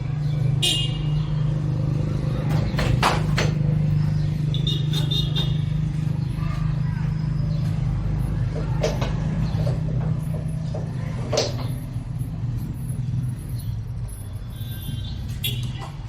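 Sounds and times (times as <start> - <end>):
sharp knocks: 2.4 - 3.6.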